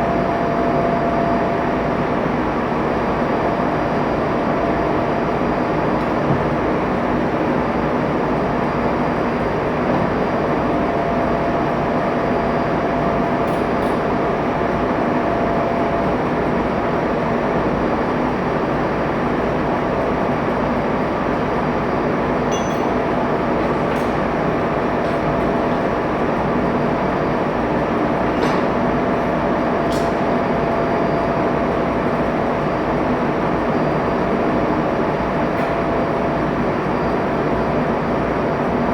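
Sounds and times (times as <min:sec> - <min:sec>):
engine room machinery: 0:00.0 - 0:38.9.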